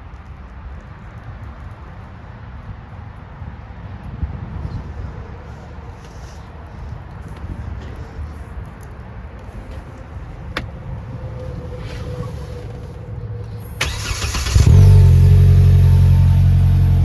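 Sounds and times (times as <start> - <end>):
car engine idling: 9.7 - 17.0
starter cranking: 13.8 - 15.2.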